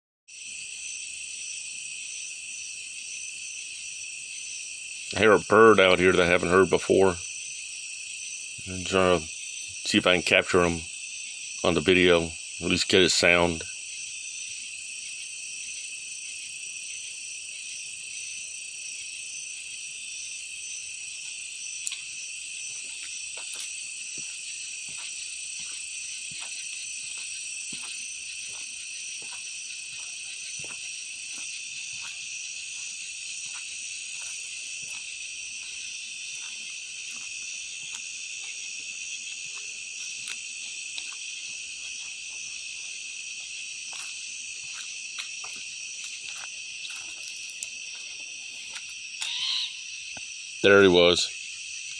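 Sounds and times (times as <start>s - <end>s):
night insects singing: 0.3s - 51.9s
faint ticks: 21.8s - 22.0s.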